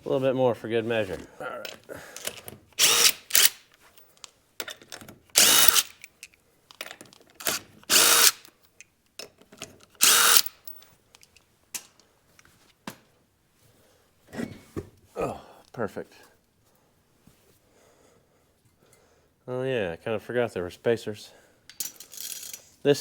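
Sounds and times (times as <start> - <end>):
power tool removing wheel nuts: 2.2 - 3.7, 5.4 - 6.0, 7.4 - 8.5, 10.0 - 10.7.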